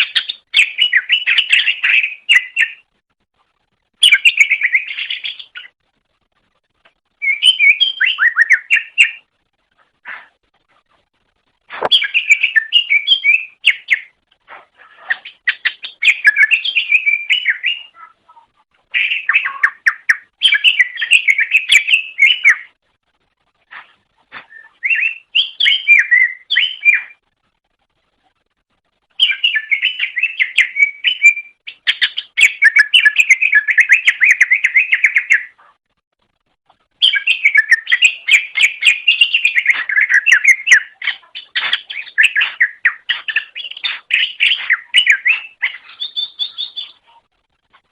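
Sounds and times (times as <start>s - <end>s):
bird singing chattering whistles: 7.2s - 9.3s, 11.8s - 14.2s, 24.4s - 27.2s, 29.2s - 35.5s, 37.0s - 47.1s.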